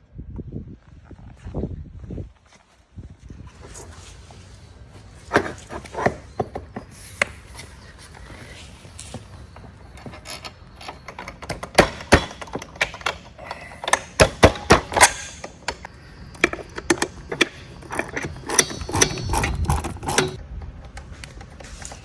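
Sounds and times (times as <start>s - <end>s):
metallic clicks of hand tools: 10.1s - 20.4s.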